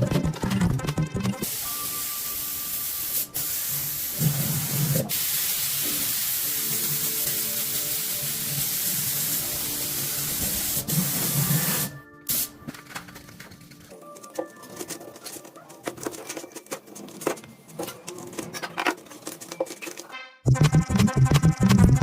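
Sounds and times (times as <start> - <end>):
air spray gun hissing: 1.4 - 12.5.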